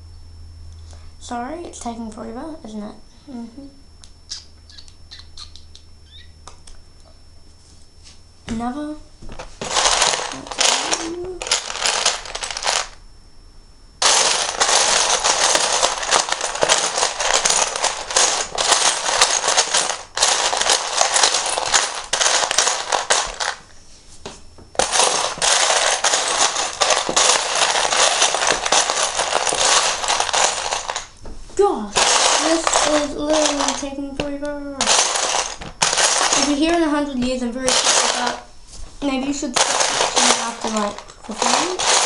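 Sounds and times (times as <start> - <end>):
plastic bricks clattering: 9.6 - 13.0, 14.0 - 23.6, 24.8 - 31.1, 32.0 - 34.0, 34.8 - 36.8, 37.7 - 38.5, 39.5 - 42.0.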